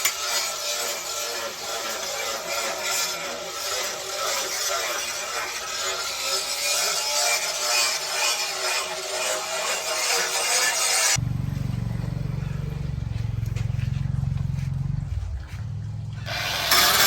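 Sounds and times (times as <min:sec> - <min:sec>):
abrasive tool grinding steel: 0:00.0 - 0:11.2, 0:16.3 - 0:17.0.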